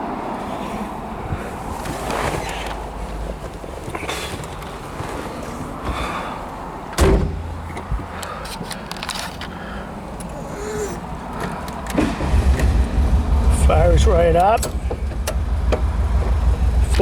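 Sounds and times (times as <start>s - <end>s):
car door slamming: 6.9s - 8.1s
light clicks and rattles: 7.4s - 12.7s.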